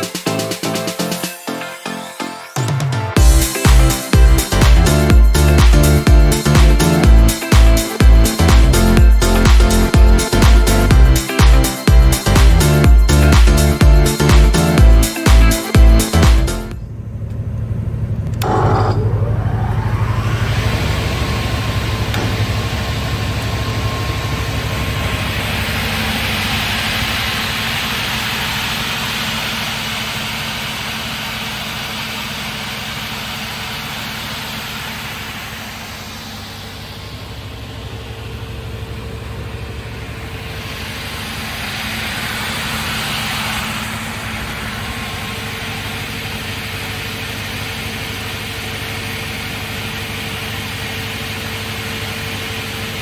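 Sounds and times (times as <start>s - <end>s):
rip saw running: 20.2s - 38.0s, 40.1s - 49.8s.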